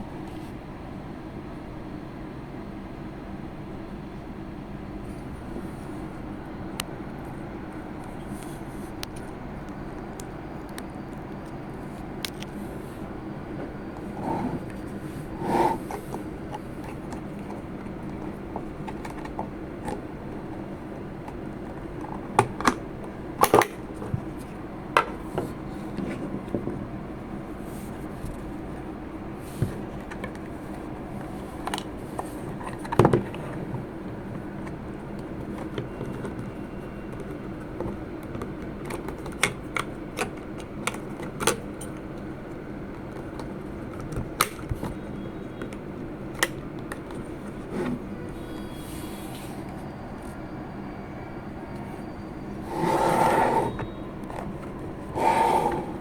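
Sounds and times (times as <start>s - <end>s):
steady low hum: 0.0s - 22.3s.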